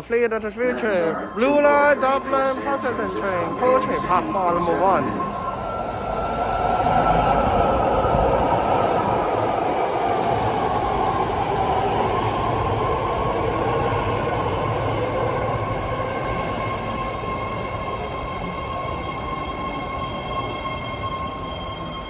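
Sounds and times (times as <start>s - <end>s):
train whining tones: 0.0s - 22.0s
train wheels rumbling on rail: 5.3s - 22.0s.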